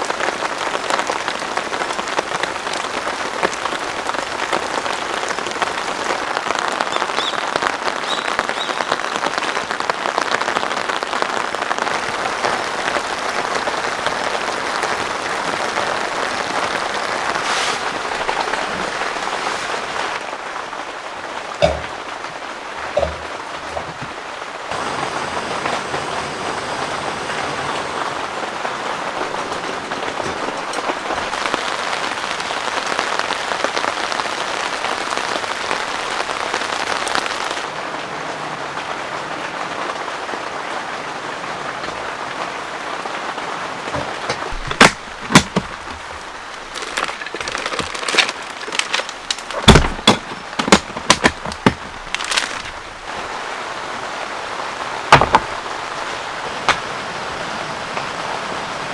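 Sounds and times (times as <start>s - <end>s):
heavy rain hissing: 0.0s - 58.9s
heavy drops tapping: 21.6s - 22.2s, 22.8s - 26.1s, 28.6s - 31.7s, 44.0s - 53.0s, 55.1s - 55.9s.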